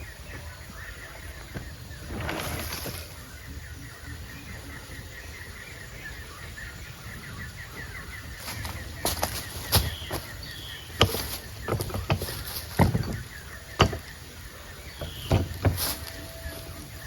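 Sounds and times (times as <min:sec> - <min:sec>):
faint bird chirps: 0:00.0 - 0:17.0
sharp knocks and thuds: 0:08.4 - 0:14.3, 0:14.9 - 0:16.2.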